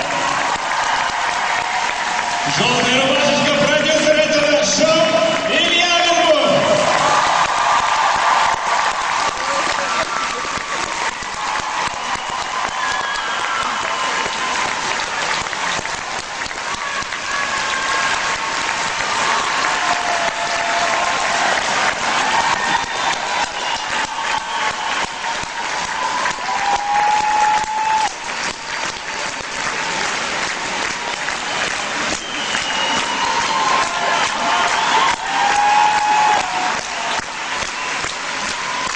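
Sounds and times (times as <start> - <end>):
audience applauding: 0.0 - 38.9
whistles and calls from crowd: 12.0 - 14.6, 22.6 - 25.4, 26.6 - 29.7, 31.4 - 38.9.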